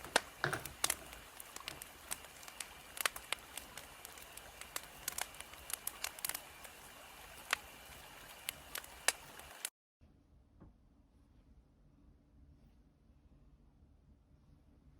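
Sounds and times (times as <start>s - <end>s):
wood fire crackling: 0.0s - 9.7s.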